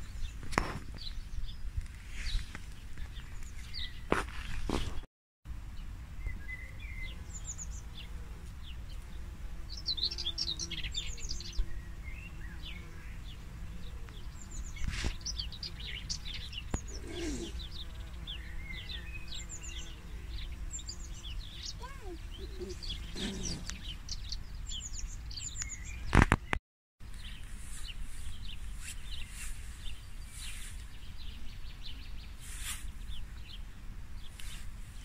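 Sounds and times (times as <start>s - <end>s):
birds chirping and trilling: 0.0s - 5.0s, 5.8s - 26.6s.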